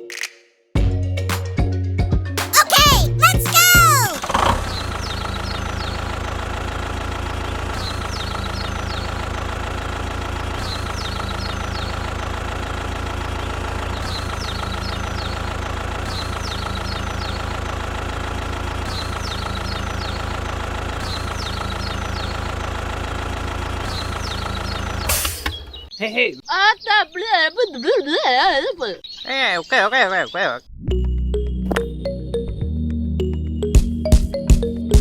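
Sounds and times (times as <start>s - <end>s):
engine idling with knocking hum: 4.4s - 25.1s.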